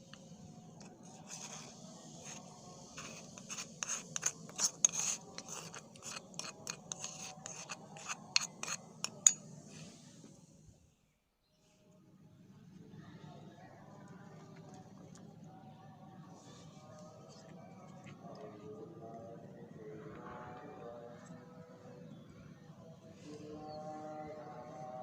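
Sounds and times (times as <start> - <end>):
utensil scraping and clicking on dish: 3.0 - 9.4.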